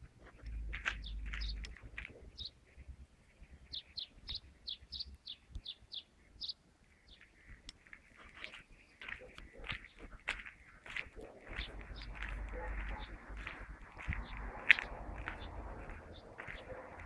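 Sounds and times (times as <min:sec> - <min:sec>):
small bird chirping: 0:00.5 - 0:17.0
low rumble: 0:11.3 - 0:17.0.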